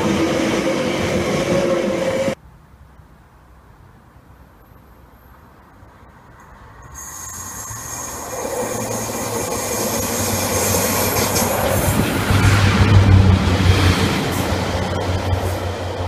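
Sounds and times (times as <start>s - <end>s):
diesel train approaching: 0.0s - 2.4s, 6.0s - 16.0s
high steady squeal: 6.8s - 12.2s.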